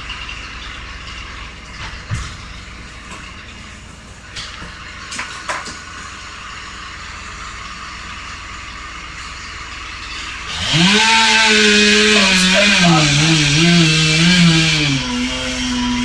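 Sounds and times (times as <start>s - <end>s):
steady machinery noise: 0.0s - 16.0s
chainsaw revving and cutting: 10.0s - 16.0s.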